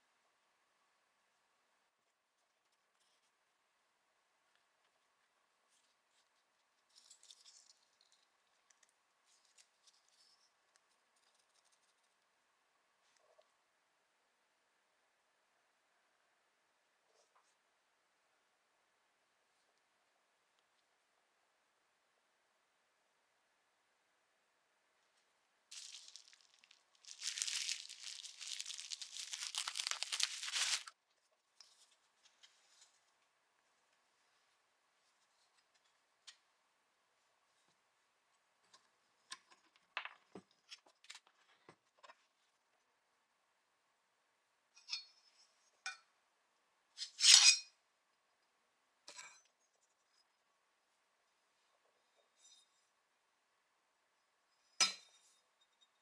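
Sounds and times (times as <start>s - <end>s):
material crinkling and tearing: 25.7s - 31.0s.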